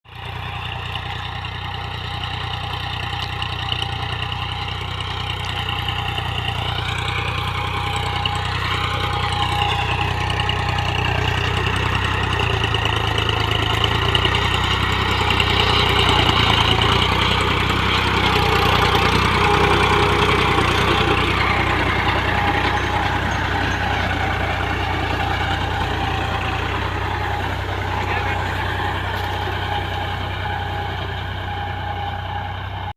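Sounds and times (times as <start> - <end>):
tractor diesel engine under load: 0.0 - 32.9.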